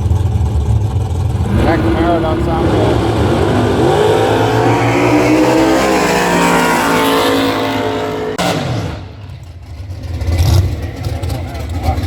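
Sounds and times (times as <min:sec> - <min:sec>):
car engine at high revs: 0:00.0 - 0:12.0
person speaking: 0:01.6 - 0:03.2.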